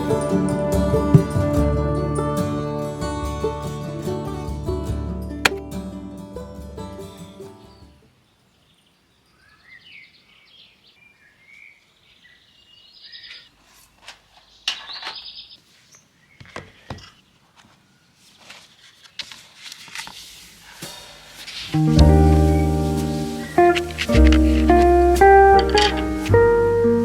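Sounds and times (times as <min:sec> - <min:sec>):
birds chirping and singing: 0:08.6 - 0:13.6, 0:14.5 - 0:17.2.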